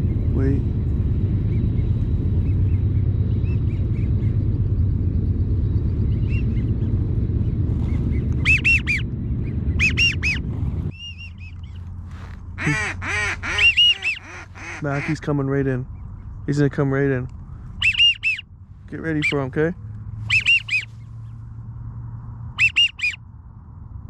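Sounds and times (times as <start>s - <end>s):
steady low rumble: 0.0s - 24.0s
whistled duck calls: 8.4s - 9.0s, 9.8s - 15.2s, 17.8s - 18.5s, 20.2s - 20.9s, 22.5s - 23.2s
rapid quacks: 12.1s - 15.4s.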